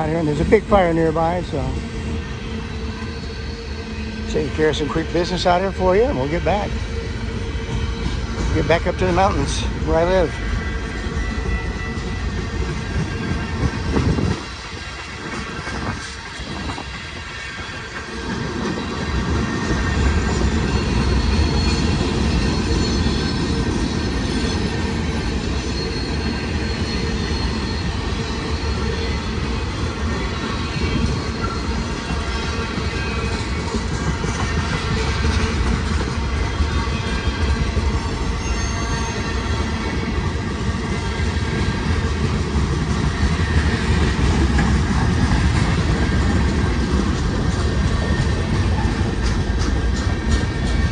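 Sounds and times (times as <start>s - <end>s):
freight train rumbling: 0.0s - 50.9s
faint wheel squeal: 20.2s - 41.8s.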